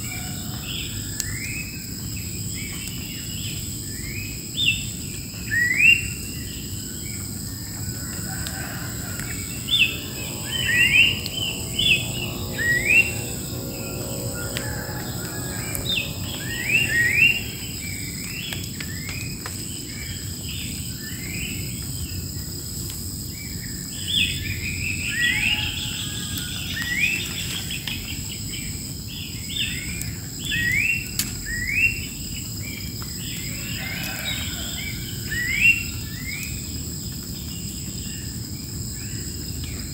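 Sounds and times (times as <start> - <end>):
insects droning: 0.0 - 39.9
birds calling rising notes: 8.3 - 19.2.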